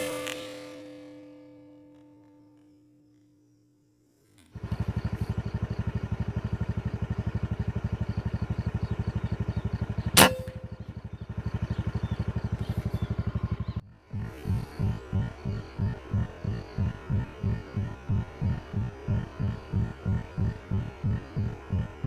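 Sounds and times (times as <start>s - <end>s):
low throbbing pulse: 0.0s - 2.0s, 4.6s - 22.0s
air rifle shot: 10.0s - 10.8s.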